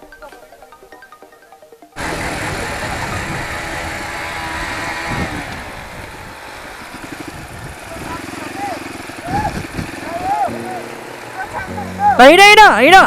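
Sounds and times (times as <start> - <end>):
quiet background music: 0.0 - 2.4
dirt bike engine running: 2.0 - 13.0.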